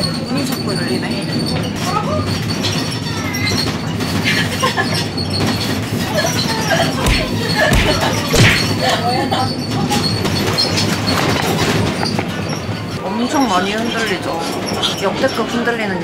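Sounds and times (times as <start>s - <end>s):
heavy low thumps: 7.1s - 8.8s.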